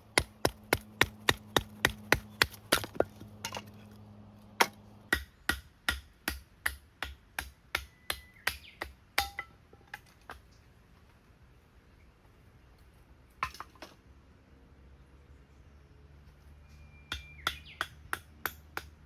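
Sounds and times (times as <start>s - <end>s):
firewood being chopped: 0.0s - 3.8s, 4.6s - 10.4s, 17.1s - 19.0s.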